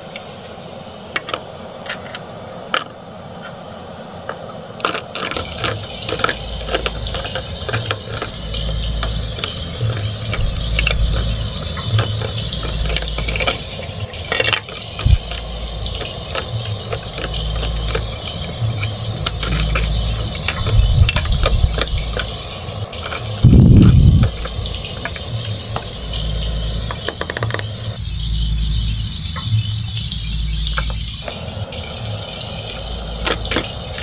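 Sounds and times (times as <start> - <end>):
steady sizzling hiss: 0.0 - 34.0
plastic spatula clicking and scraping: 4.3 - 25.9.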